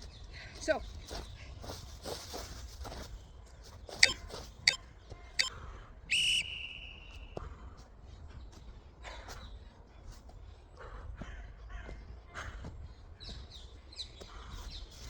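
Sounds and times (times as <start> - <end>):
timer short beeps: 4.0 - 4.8, 5.4 - 6.8.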